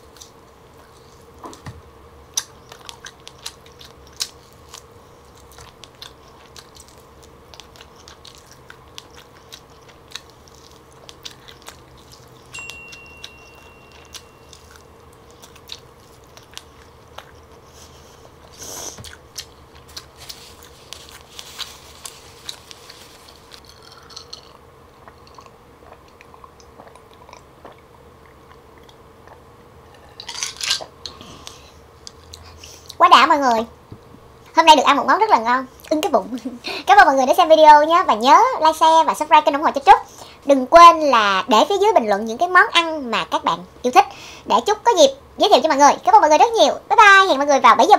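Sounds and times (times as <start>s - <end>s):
faint steady hum: 0.0s - 47.9s
chewing with wet mouth clicks: 2.3s - 29.5s, 30.2s - 33.0s.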